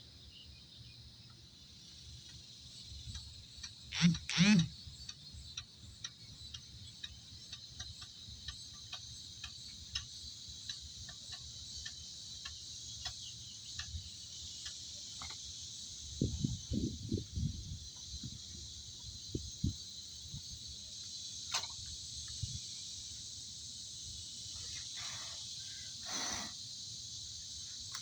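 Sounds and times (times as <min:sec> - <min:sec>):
insects chirring: 0:00.0 - 0:28.0
light ticks: 0:05.0 - 0:14.0.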